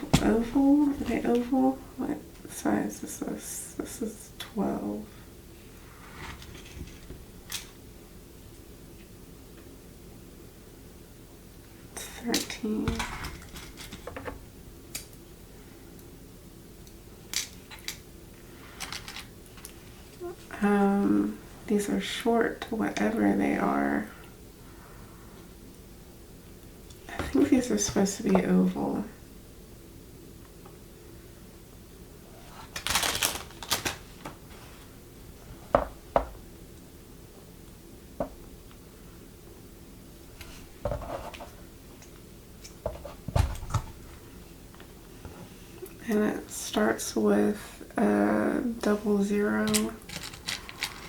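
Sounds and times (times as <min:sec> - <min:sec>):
packaging rustling: 0:32.6 - 0:34.3.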